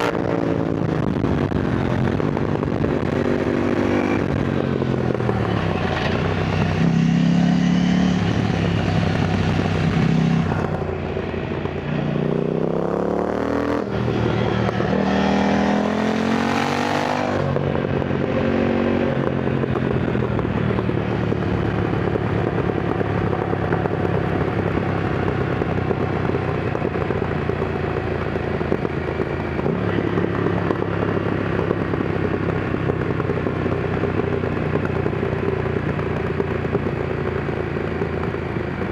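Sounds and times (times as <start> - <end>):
wind noise: 0.0 - 12.0
motorcycle engine revving: 0.0 - 38.9.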